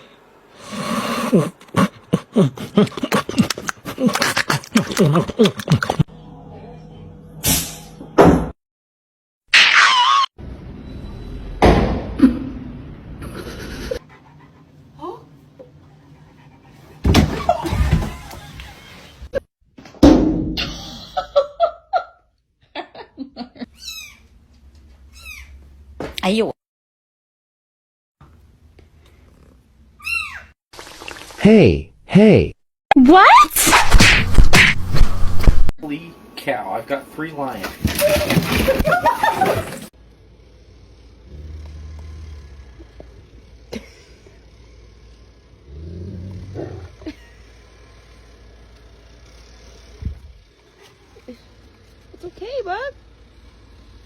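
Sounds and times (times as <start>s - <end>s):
cat meowing and chirping: 23.7s - 24.3s, 25.1s - 25.6s, 30.0s - 30.6s
lion growling low: 45.6s - 47.0s.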